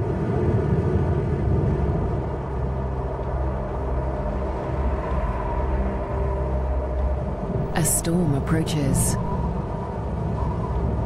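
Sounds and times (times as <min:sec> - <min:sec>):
sustained background score tones: 0:01.2 - 0:11.0.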